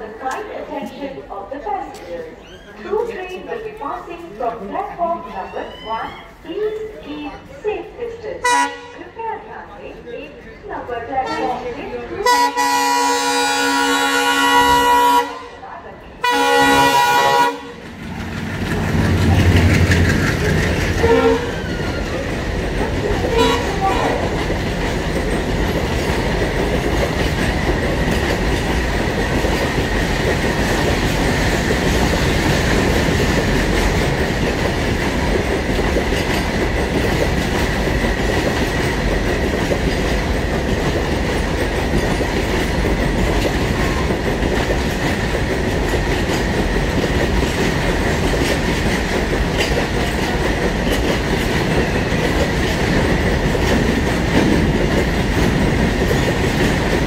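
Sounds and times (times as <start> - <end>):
freight wagon wheels rumbling: 17.5 - 57.0.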